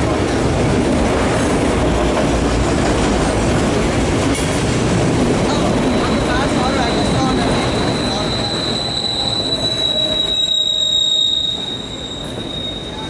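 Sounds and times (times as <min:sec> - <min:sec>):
freight train rolling past: 0:00.0 - 0:13.0
high-pitched wheel squeal: 0:05.6 - 0:13.0.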